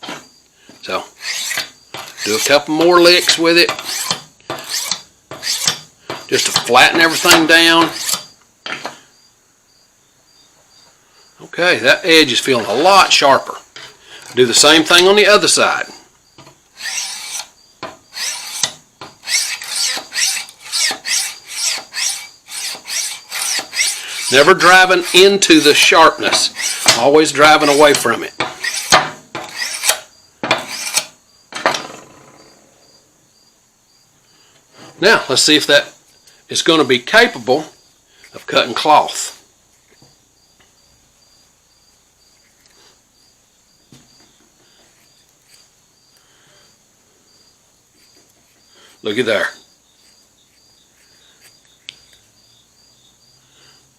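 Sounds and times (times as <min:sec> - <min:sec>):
high insect hiss: 0:00.0 - 0:03.1, 0:07.1 - 0:53.9
crickets chirping: 0:00.0 - 0:53.9
stone scraping steel blade: 0:03.8 - 0:05.8.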